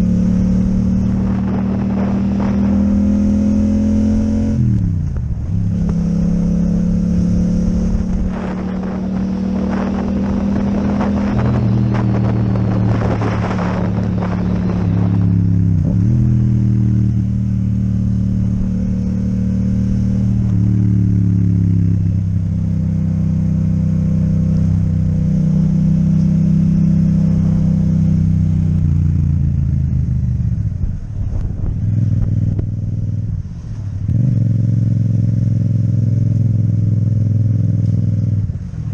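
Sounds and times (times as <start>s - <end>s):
motorcycle engine riding: 0.0s - 38.9s.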